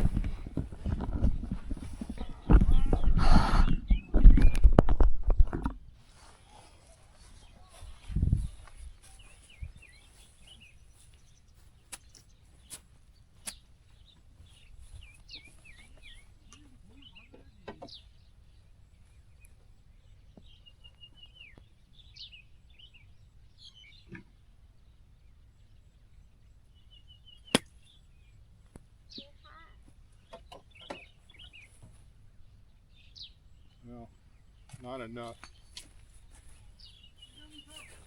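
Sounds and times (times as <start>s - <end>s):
small birds chirping: 0.0s - 38.0s
golf club striking ball: 27.5s - 27.8s.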